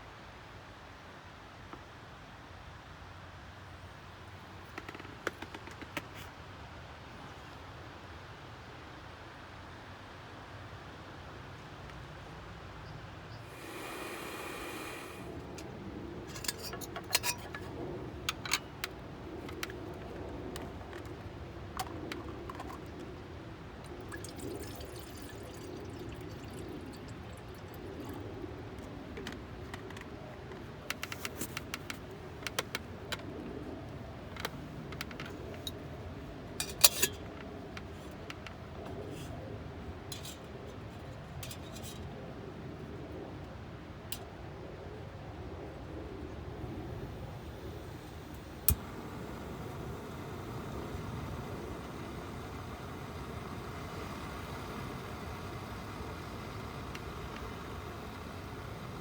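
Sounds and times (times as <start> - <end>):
liquid pouring: 23.8 - 28.3.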